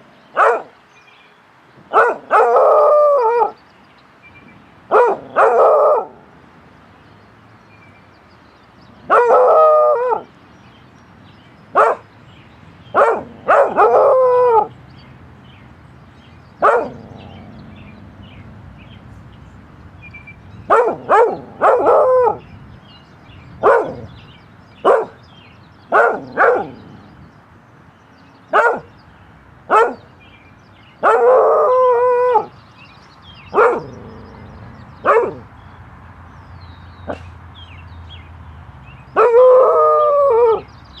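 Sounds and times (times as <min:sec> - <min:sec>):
dog barking: 0:00.4 - 0:00.7, 0:01.9 - 0:03.5, 0:04.9 - 0:06.2, 0:09.1 - 0:10.2, 0:11.8 - 0:12.0, 0:12.9 - 0:14.7, 0:16.6 - 0:17.4, 0:20.7 - 0:22.4, 0:23.6 - 0:24.1, 0:24.8 - 0:25.2, 0:25.9 - 0:26.8, 0:28.5 - 0:28.9, 0:29.7 - 0:30.1, 0:31.0 - 0:32.5, 0:33.5 - 0:34.4, 0:35.0 - 0:35.5, 0:39.2 - 0:39.8
dog howling barks: 0:00.4 - 0:00.7, 0:01.9 - 0:03.6, 0:04.9 - 0:06.2, 0:09.1 - 0:10.3, 0:11.8 - 0:12.0, 0:12.9 - 0:14.7, 0:16.6 - 0:17.5, 0:20.7 - 0:22.4, 0:23.6 - 0:24.1, 0:24.8 - 0:25.2, 0:25.9 - 0:26.8, 0:28.5 - 0:28.9, 0:29.7 - 0:30.1, 0:31.0 - 0:32.5, 0:33.5 - 0:35.5, 0:39.2 - 0:40.7.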